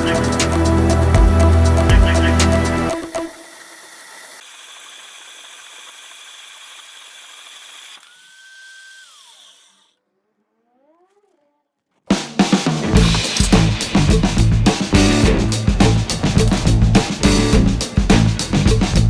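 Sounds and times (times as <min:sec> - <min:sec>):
background music: 0:00.0 - 0:03.4, 0:12.8 - 0:19.0
small motor whining: 0:00.0 - 0:10.4.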